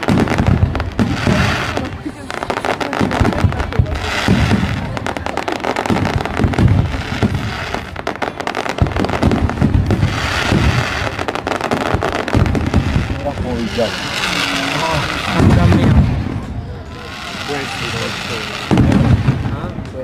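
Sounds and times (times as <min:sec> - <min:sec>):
fireworks crackling pops: 0:00.0 - 0:20.0
low firework thumps: 0:03.0 - 0:14.3, 0:15.0 - 0:16.6, 0:18.6 - 0:20.0.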